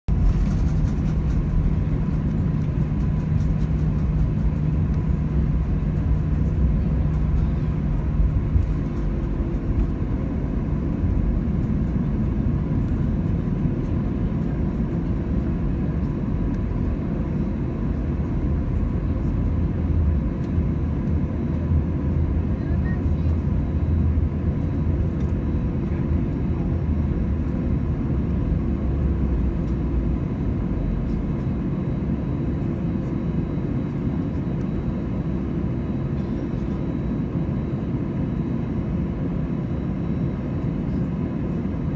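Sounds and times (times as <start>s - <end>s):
airliner cabin engine rumble: 0.1s - 41.9s.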